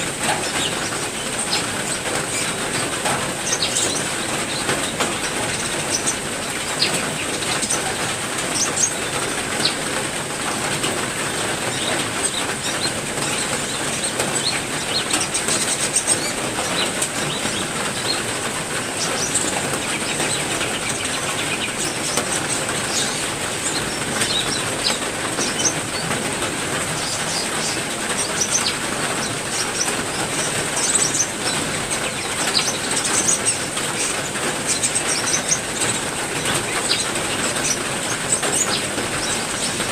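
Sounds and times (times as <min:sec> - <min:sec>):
heavy rain falling: 0:00.0 - 0:39.9
songbirds chirping: 0:00.0 - 0:39.9.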